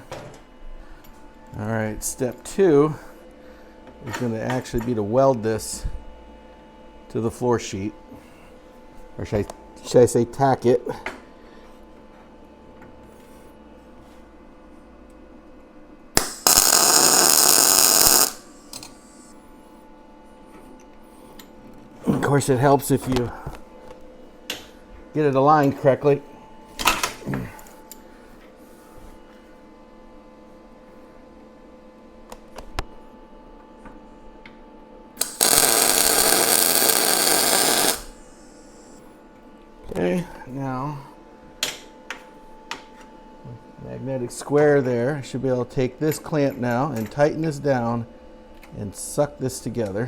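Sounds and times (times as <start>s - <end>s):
arc welder crackling hiss: 16.2s - 19.3s, 35.2s - 39.0s.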